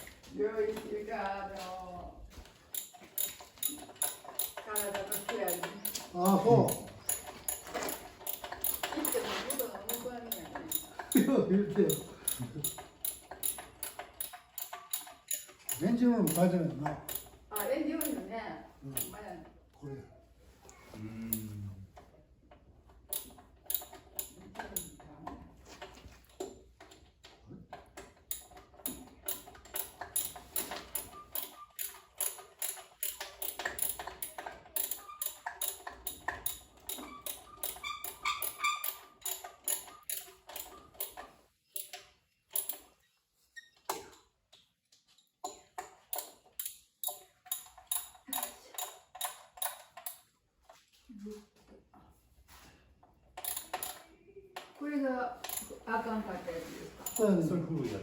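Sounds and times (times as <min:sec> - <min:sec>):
rapid ratchet clicks on metal: 0:02.7 - 0:11.3, 0:11.9 - 0:18.3, 0:23.1 - 0:25.0, 0:27.9 - 0:43.0, 0:45.5 - 0:50.3, 0:53.4 - 0:54.0, 0:55.4 - 0:55.8.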